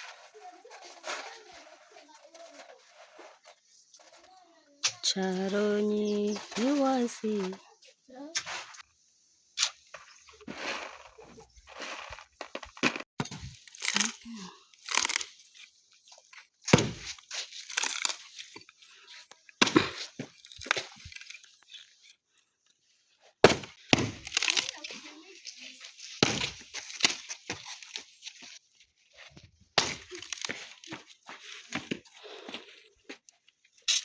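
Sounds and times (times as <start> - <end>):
rustling crackling noise: 0.0 - 7.6.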